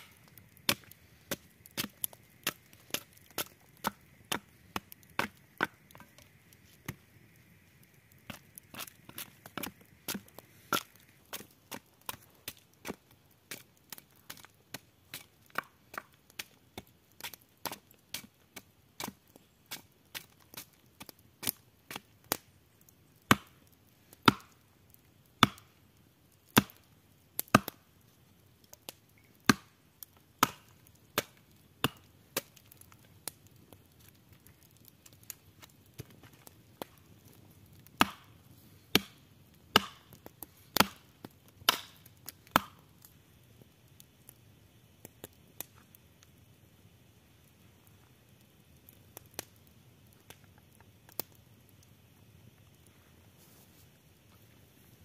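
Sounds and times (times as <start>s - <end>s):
wood being chopped: 23.3s - 23.6s, 25.4s - 25.7s, 26.6s - 26.8s, 27.4s - 27.8s, 29.5s - 29.7s, 30.4s - 30.6s, 31.2s - 32.5s, 38.0s - 38.2s, 39.7s - 40.1s, 40.8s - 41.0s, 41.7s - 42.8s.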